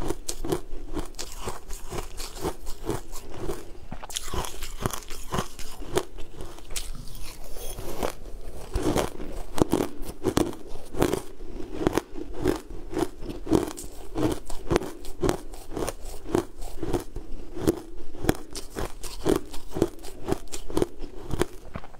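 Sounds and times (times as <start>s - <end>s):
person chewing crunchy food: 0.0s - 21.9s.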